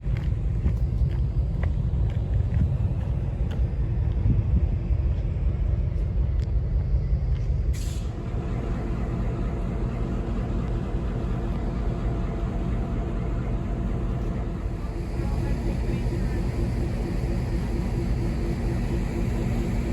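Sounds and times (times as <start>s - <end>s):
train rumbling: 0.0s - 19.9s.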